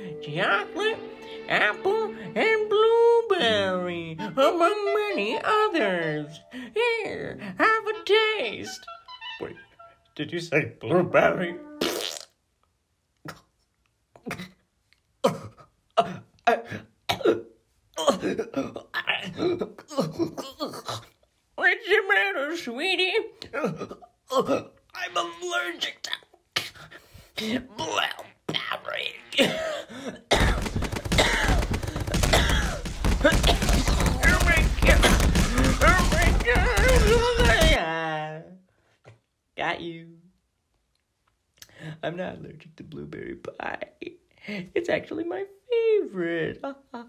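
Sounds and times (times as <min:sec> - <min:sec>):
cartoon character coughing and choking: 0:14.2 - 0:14.6, 0:15.2 - 0:21.2, 0:23.5 - 0:24.8, 0:29.3 - 0:37.8
person groaning and gasping: 0:18.0 - 0:21.2, 0:23.4 - 0:24.8, 0:29.4 - 0:37.8
rapid crackle of heavy thumps: 0:30.3 - 0:37.8.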